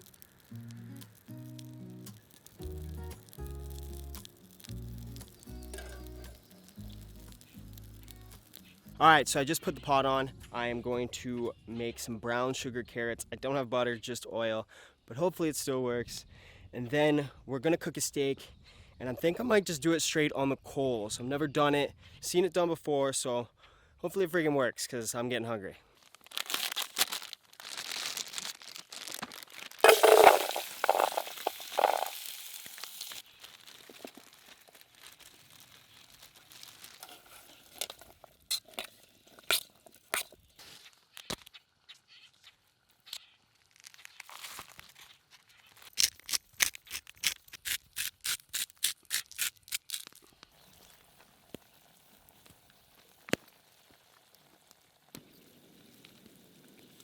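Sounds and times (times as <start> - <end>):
packaging crinkling and tearing: 0.0 - 8.8, 26.0 - 41.5, 43.1 - 51.0.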